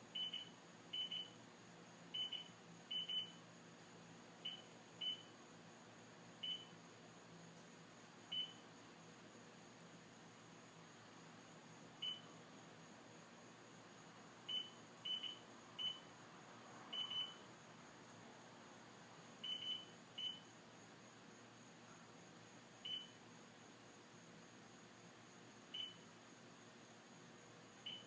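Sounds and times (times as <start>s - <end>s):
warning buzzer beeps: 0.2s - 1.4s, 2.2s - 3.4s, 6.4s - 6.7s, 14.5s - 16.0s, 19.5s - 20.5s.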